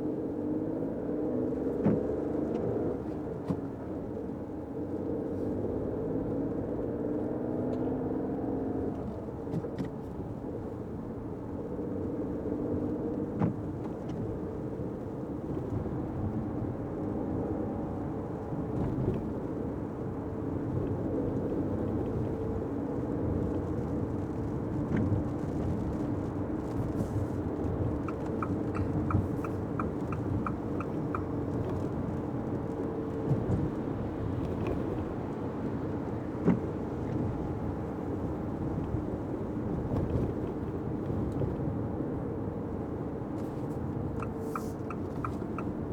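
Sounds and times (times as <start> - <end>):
car engine and tyre noise: 0.0 - 45.9
turn signal ticking: 23.3 - 39.4, 43.4 - 45.9.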